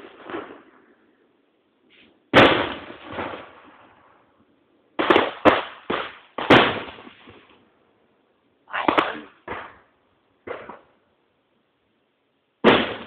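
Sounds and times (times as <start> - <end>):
firework shells bursting: 8.7 - 11.0.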